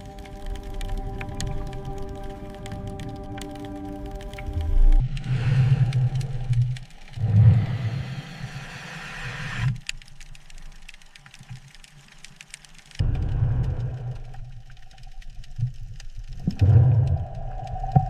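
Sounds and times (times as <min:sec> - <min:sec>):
faint clicks: 0:00.0 - 0:07.6, 0:09.5 - 0:18.0
hiss: 0:07.2 - 0:09.8.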